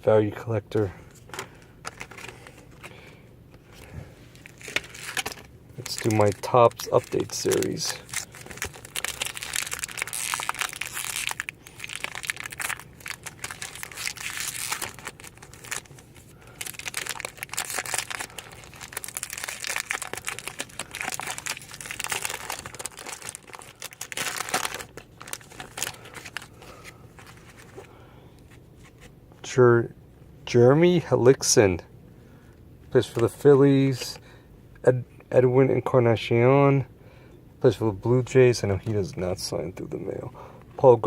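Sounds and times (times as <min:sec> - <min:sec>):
plastic packaging crinkling: 0:01.1 - 0:03.0, 0:04.3 - 0:27.9.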